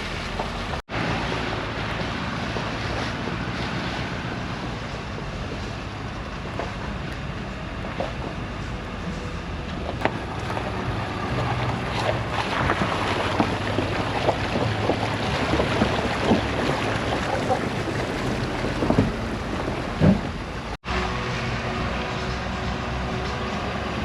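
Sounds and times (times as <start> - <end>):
tractor engine running: 0.0 - 24.0
rattles and knocks: 4.7 - 20.8.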